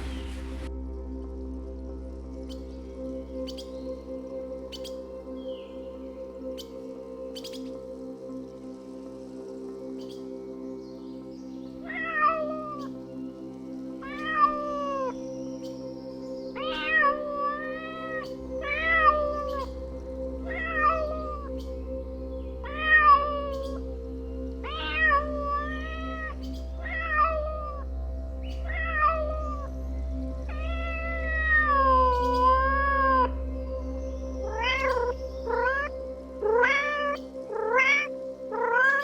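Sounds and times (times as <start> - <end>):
soft background music: 0.0 - 39.0
cat meowing: 14.0 - 15.1, 16.6 - 19.7, 20.5 - 21.5, 22.7 - 23.8, 24.7 - 27.8, 28.6 - 29.7, 30.5 - 33.3, 34.5 - 39.0.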